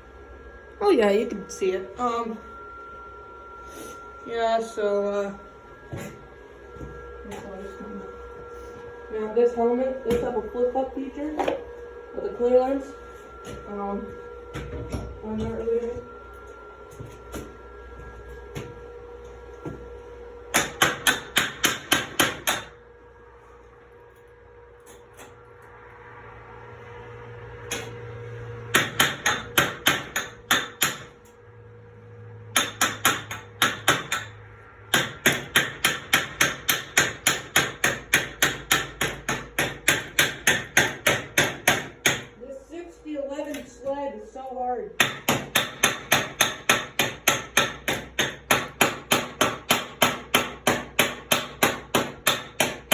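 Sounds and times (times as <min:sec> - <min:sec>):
chipping hammer striking metal: 0:20.5 - 0:22.8, 0:28.7 - 0:31.2, 0:32.5 - 0:42.3, 0:45.0 - 0:52.9.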